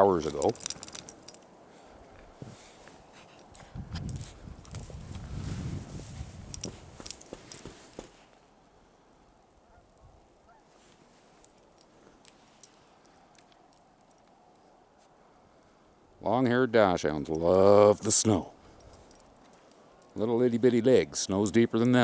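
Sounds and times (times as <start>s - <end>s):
small metal jingle: 0.0s - 1.5s, 3.3s - 5.4s, 6.0s - 8.1s, 11.4s - 14.6s, 17.2s - 20.5s.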